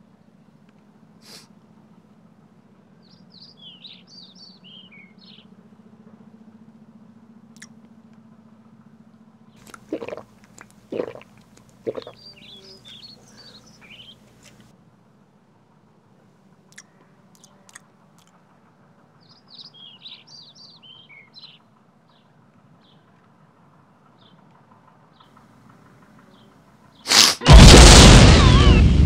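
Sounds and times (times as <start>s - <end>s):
small birds chirping: 3.0s - 5.6s, 9.5s - 14.7s, 16.6s - 18.4s, 19.2s - 23.2s, 25.1s - 27.2s
loud short noises: 27.1s - 29.0s
low hum: 27.5s - 29.0s.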